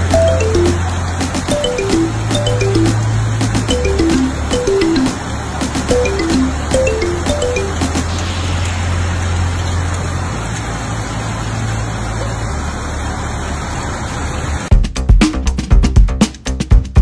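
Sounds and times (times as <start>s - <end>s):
background music: 0.0s - 8.1s
heavy rain on a street: 0.0s - 14.7s.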